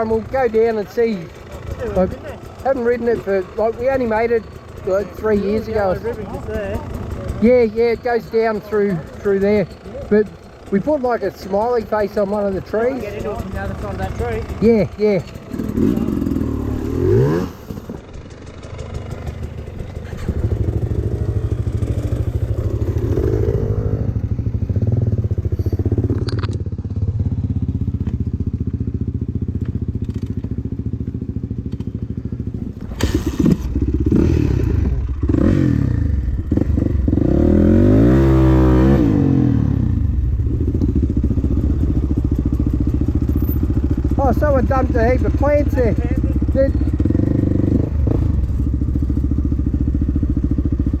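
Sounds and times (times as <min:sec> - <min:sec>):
dirt bike engine revving: 0:00.0 - 0:31.8, 0:32.4 - 0:51.0
bike rattling over rough ground: 0:00.0 - 0:35.6.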